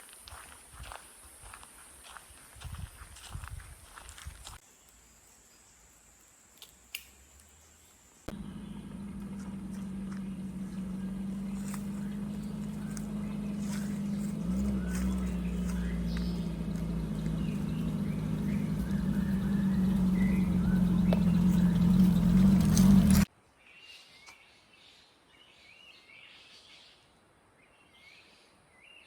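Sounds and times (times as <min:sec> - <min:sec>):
faint bird chirps: 0:07.6 - 0:27.0
engine running steadily: 0:08.3 - 0:23.3.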